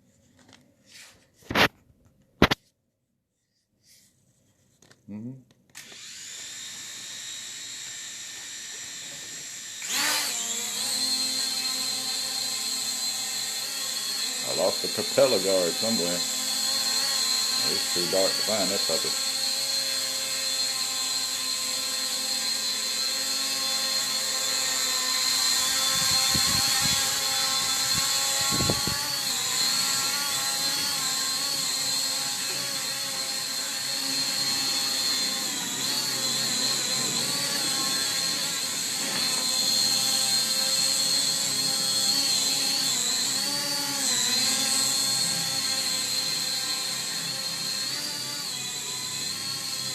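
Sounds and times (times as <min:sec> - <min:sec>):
drone propellers whining: 0:06.0 - 0:49.9.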